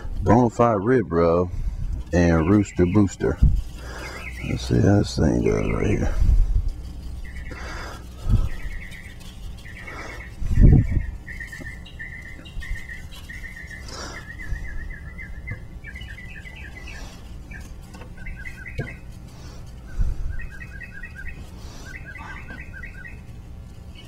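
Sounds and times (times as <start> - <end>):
low background hum: 0.0 - 24.0
songbird chirping: 2.2 - 6.2, 7.0 - 24.0.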